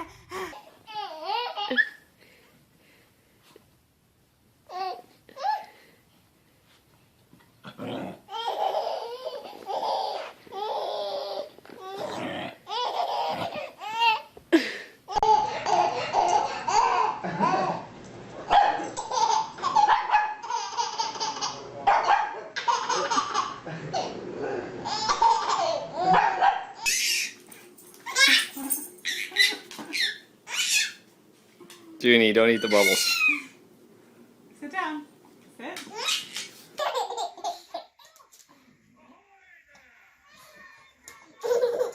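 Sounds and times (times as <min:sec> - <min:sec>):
people laughing: 0:15.4 - 0:17.9, 0:22.6 - 0:25.1.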